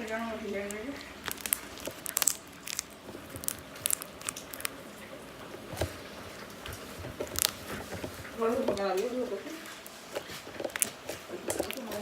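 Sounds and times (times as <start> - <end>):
slime squeezed clicking and popping: 0.7 - 4.8, 7.2 - 7.7, 10.7 - 12.0.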